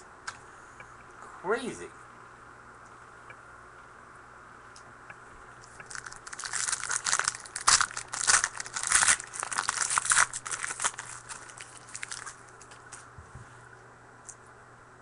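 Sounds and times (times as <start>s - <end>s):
wrapper crinkling and tearing: 5.8s - 13.1s.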